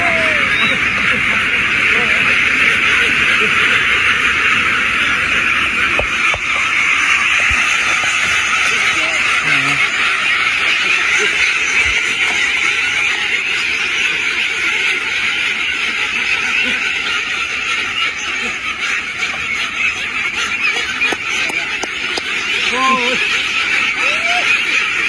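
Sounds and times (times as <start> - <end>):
ducks quacking: 0.0 - 25.0.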